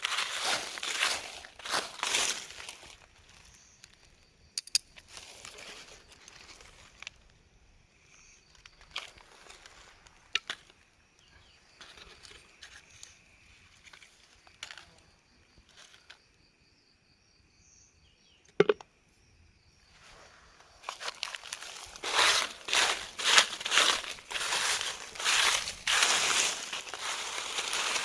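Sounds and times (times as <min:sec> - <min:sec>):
rustling and crinkling: 0:00.0 - 0:04.2, 0:05.0 - 0:07.4, 0:08.5 - 0:10.8, 0:11.7 - 0:16.3, 0:20.0 - 0:28.0
high insect trill: 0:00.0 - 0:28.0.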